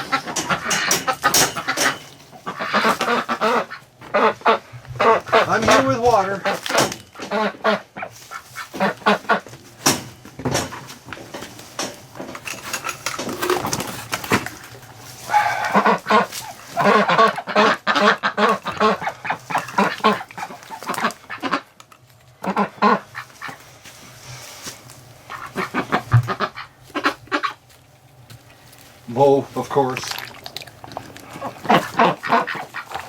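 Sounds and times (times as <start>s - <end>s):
ducks quacking and geese honking: 0.0s - 9.5s, 15.2s - 21.8s, 22.4s - 23.8s, 25.2s - 27.7s, 29.6s - 33.0s.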